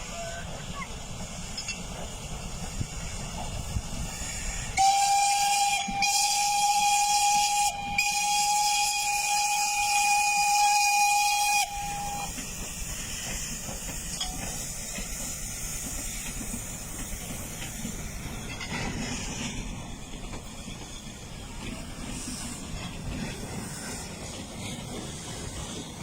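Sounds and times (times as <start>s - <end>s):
train running: 0.0s - 26.0s
train horn: 4.8s - 12.3s.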